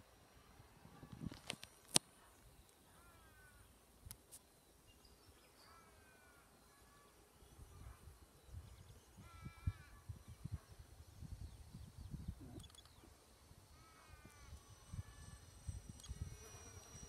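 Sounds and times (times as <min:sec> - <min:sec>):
bird chirps: 0:04.7 - 0:13.2
sharp clicks: 0:12.6 - 0:13.0.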